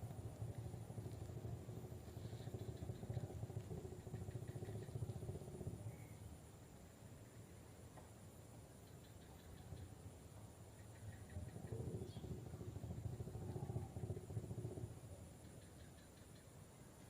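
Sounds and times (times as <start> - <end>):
distant engine rumbling: 0.0 - 6.5, 10.8 - 16.2.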